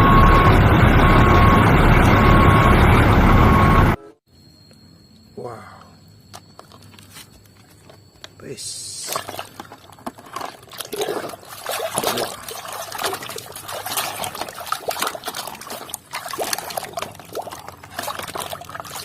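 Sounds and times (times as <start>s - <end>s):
water splashing and trickling: 8.8s - 19.0s.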